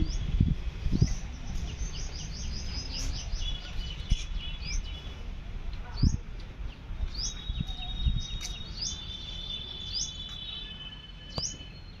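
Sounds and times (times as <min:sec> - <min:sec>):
bird chirping: 0:00.0 - 0:05.2, 0:05.9 - 0:12.0
high-pitched bird trill: 0:07.1 - 0:12.0.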